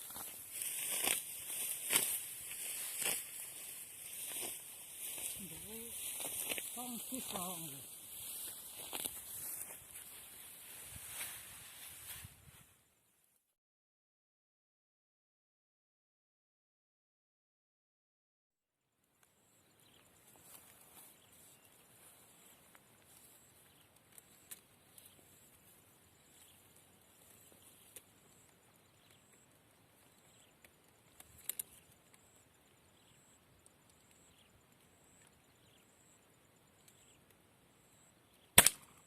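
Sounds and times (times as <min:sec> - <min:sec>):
cluster of clicks: 0:23.8 - 0:25.2, 0:30.3 - 0:32.4.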